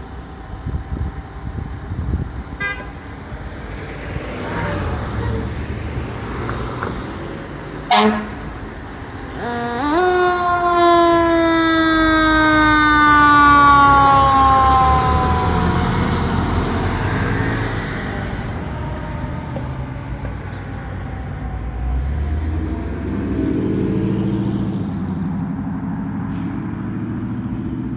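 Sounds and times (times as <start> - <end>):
truck engine rumble: 0.0 - 27.9
fire engine siren winding down: 7.9 - 24.9.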